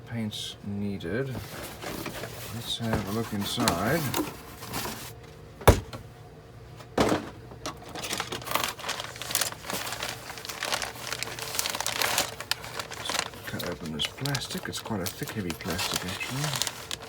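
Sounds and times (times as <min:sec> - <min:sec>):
plastic bags crinkling: 0:01.4 - 0:04.8, 0:07.8 - 0:17.0.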